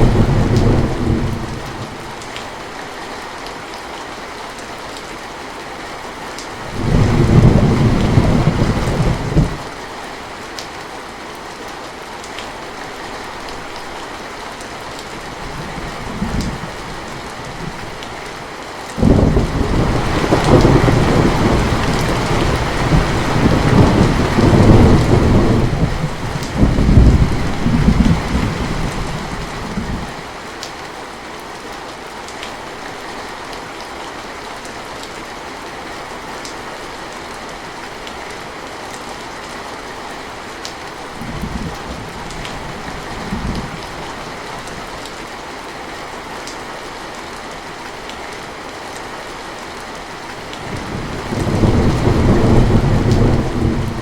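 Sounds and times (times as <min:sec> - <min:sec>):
thunder rumbling: 0:00.0 - 0:01.9, 0:06.6 - 0:09.7, 0:19.0 - 0:30.1, 0:50.6 - 0:54.0
rain falling: 0:00.0 - 0:54.0.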